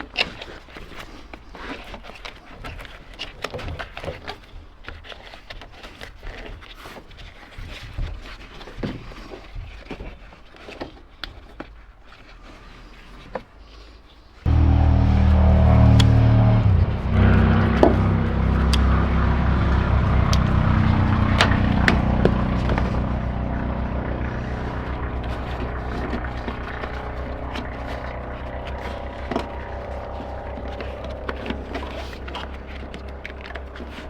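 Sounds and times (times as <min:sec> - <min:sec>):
truck engine idling: 0:14.5 - 0:34.0.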